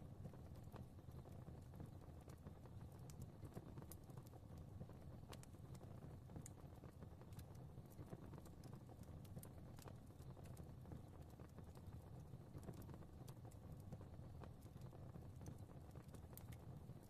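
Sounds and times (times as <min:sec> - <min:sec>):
fireplace fire crackling: 0:00.0 - 0:17.0.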